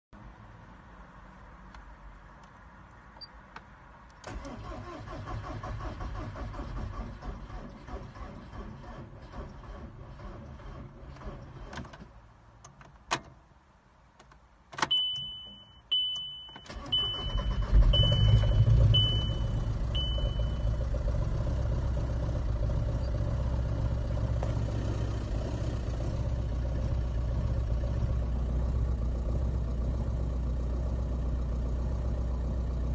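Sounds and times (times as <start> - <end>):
diesel engine cranking and idling: 4.2 - 12.0, 16.6 - 32.9
dashboard chime beeping: 14.9 - 20.7.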